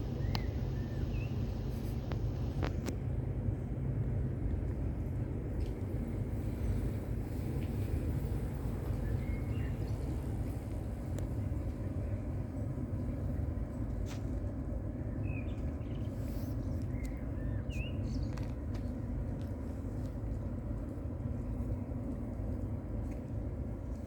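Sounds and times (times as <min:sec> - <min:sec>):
bird chirps: 0:00.1 - 0:01.4.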